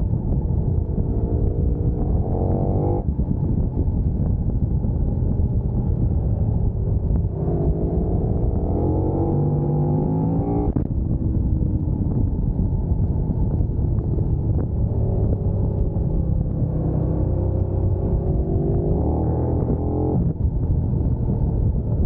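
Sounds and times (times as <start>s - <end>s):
low rumble of wind and road: 0.0s - 22.0s
motorcycle engine accelerating: 0.0s - 22.0s.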